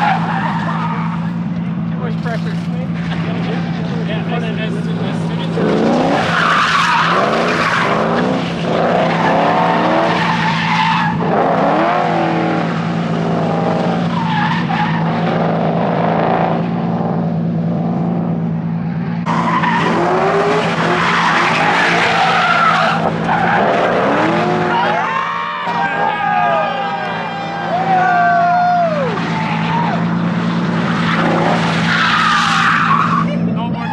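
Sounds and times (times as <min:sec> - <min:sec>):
car engines revving: 0:00.0 - 0:33.9
tyres skidding and squealing: 0:00.0 - 0:33.9.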